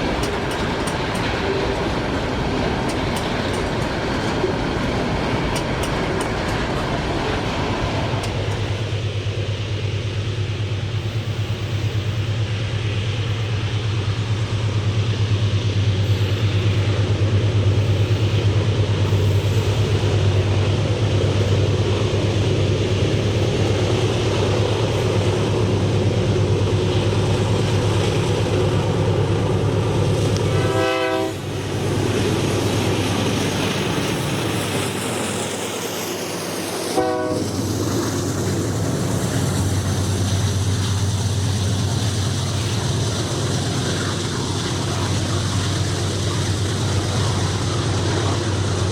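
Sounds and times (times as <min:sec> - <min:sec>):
diesel train engine drone: 0:00.0 - 0:48.9
train horn blasts: 0:30.4 - 0:31.6, 0:36.9 - 0:37.7.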